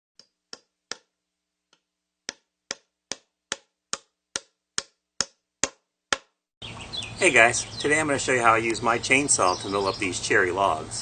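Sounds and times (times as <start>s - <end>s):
sharp ticks or knocks: 1.7s - 6.4s.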